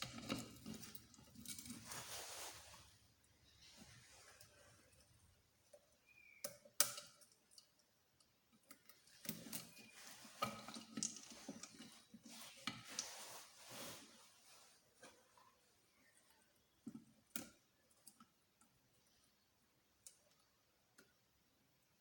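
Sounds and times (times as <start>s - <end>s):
metal parts clattering and scraping: 0.0s - 2.2s.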